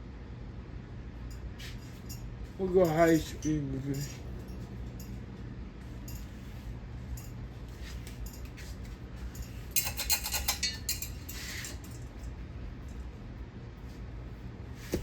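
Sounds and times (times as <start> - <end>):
ceiling fan motor hum: 0.0 - 15.0
light metallic clinks: 1.2 - 5.4, 6.0 - 13.1.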